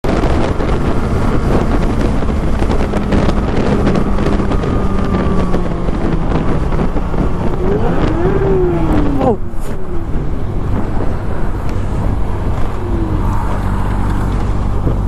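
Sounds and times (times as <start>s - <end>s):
motorcycle engine drone: 0.0s - 15.0s
wind buffeting microphone: 0.0s - 15.0s.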